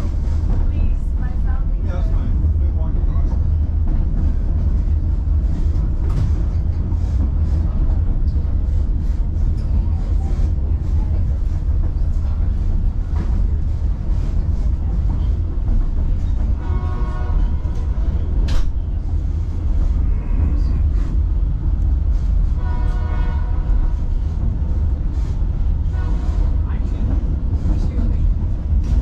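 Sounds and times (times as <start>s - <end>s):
train rumble: 0.0s - 29.0s
locomotive horn: 16.6s - 18.0s, 22.6s - 24.0s, 25.9s - 26.6s.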